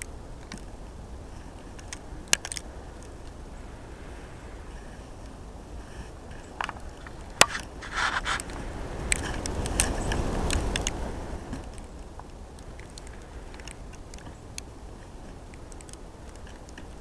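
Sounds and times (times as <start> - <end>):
crisp clicks: 1.7 - 3.4, 6.4 - 17.0.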